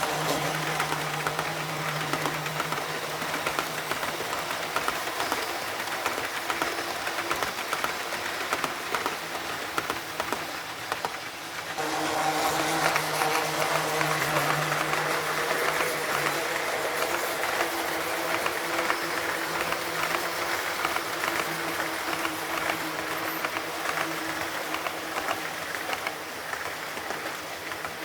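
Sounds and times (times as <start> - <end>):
model train motor hum: 0.0 - 28.0
wheels clicking over rail joints: 0.0 - 28.0.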